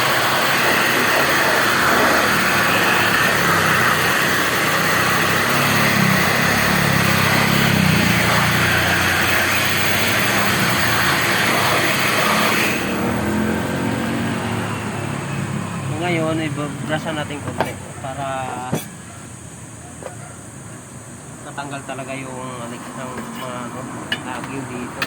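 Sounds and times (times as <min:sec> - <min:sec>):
air blower running: 0:00.0 - 0:16.5.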